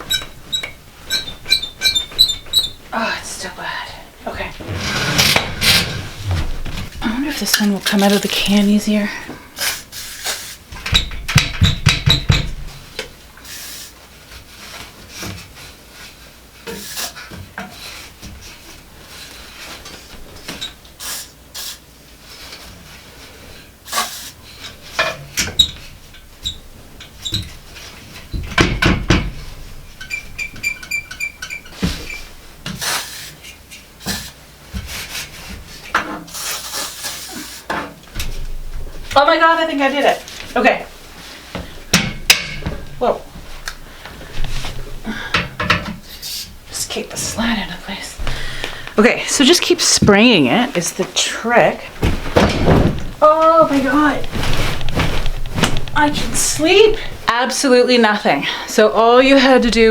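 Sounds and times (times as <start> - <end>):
metal bed frame squeaking: 0.0 - 3.1, 4.3 - 8.9, 29.4 - 32.4, 52.6 - 57.5.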